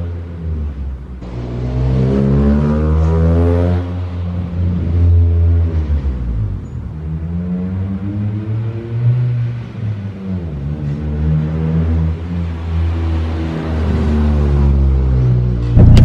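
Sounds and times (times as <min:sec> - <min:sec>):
car engine revving: 0:15.8 - 0:16.0.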